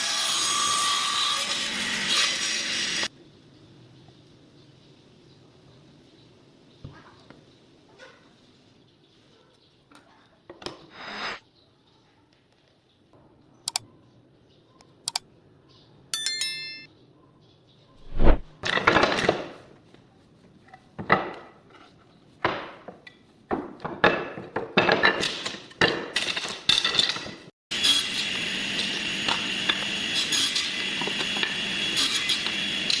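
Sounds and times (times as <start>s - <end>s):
short metallic ring: 16.2s - 16.9s
scraping and rubbing strokes: 18.0s - 18.5s.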